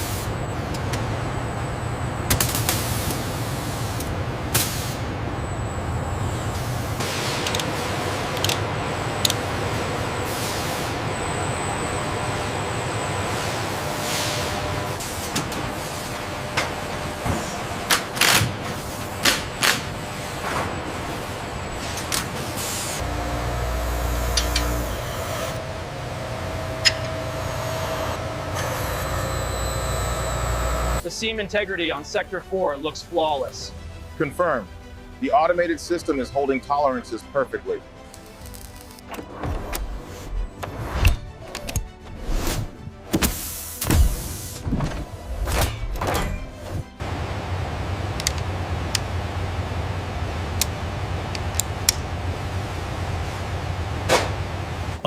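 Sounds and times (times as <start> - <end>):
factory machinery humming: 0.0 - 42.1, 42.8 - 55.0
background music: 31.0 - 47.0.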